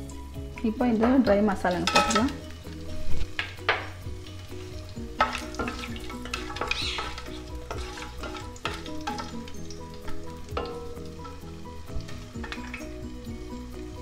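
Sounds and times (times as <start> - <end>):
spices sizzling in hot oil: 0.0 - 14.0
wooden spatula knocking on pan: 3.4 - 4.0.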